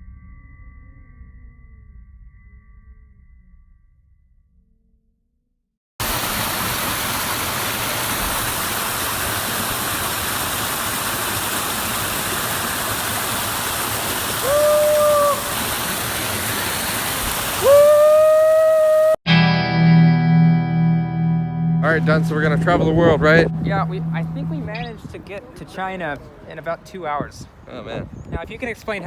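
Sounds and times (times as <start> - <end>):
waterfall rushing: 6.0 - 19.2.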